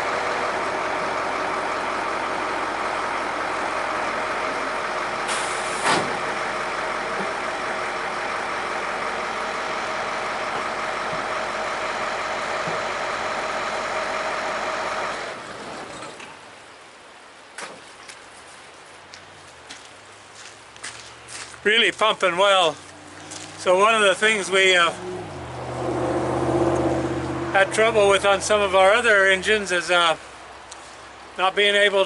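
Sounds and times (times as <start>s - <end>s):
fire engine water pump running: 0.0s - 15.8s, 23.1s - 31.6s.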